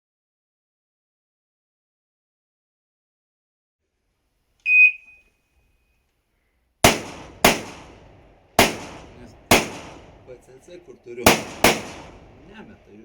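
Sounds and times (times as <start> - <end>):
shot timer beep: 4.7 - 5.2
rifle shots with echo: 6.8 - 13.0.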